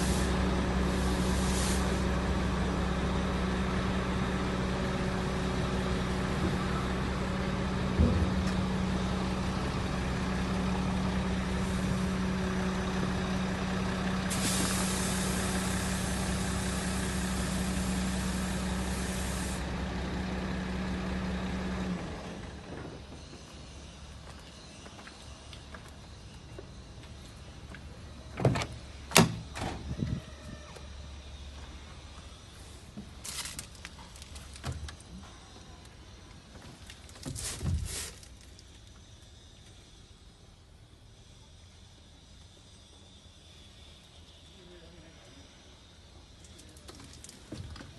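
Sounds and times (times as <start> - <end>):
air hissing: 0.0 - 2.2, 14.2 - 19.7, 37.0 - 44.3
diesel truck engine idling: 0.0 - 24.9.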